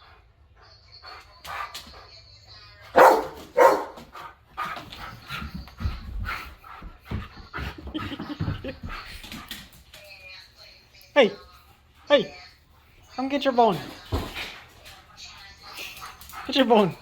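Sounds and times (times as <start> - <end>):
dog barking: 2.9 - 4.1.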